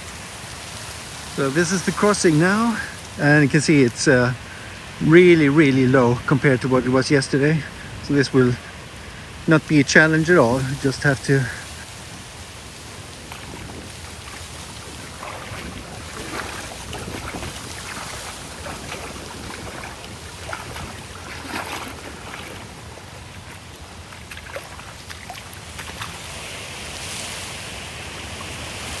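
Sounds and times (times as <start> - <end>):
stream water running and splashing: 0.0 - 29.0
wind on microphone: 7.7 - 26.3.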